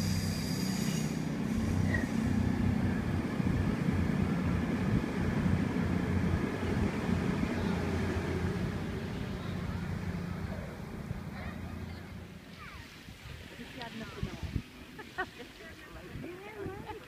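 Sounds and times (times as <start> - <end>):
diesel train engine drone: 0.0 - 12.5
train wheels rumbling on rails: 0.0 - 12.7.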